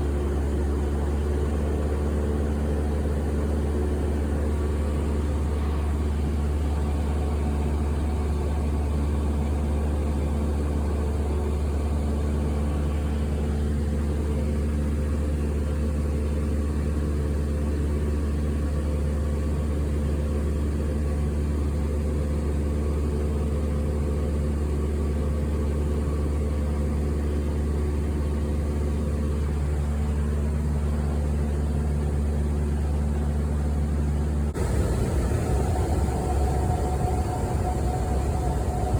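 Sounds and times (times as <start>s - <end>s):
airliner cabin engine drone: 0.0s - 14.8s, 32.6s - 38.9s
steady tonal hum: 34.6s - 38.9s.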